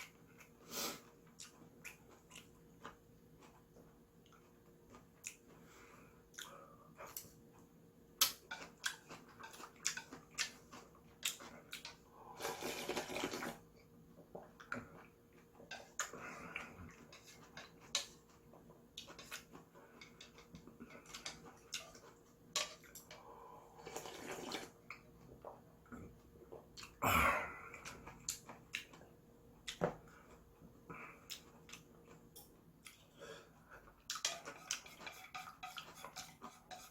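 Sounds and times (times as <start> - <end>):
chewing with mouth clicks: 0.0 - 5.6, 6.2 - 12.0, 27.7 - 29.9, 31.2 - 33.1
noodle slurping: 12.3 - 13.6, 23.8 - 24.8.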